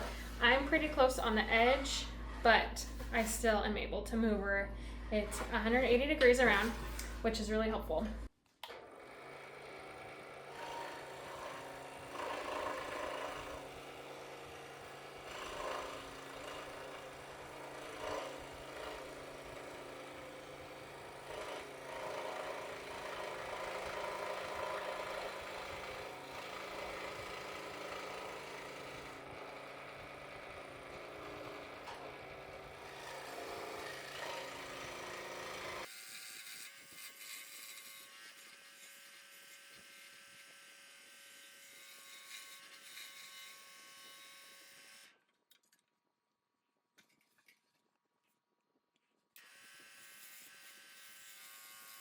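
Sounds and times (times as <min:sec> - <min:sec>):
scroll saw cutting wood: 0:08.6 - 0:45.1, 0:49.4 - 0:52.0.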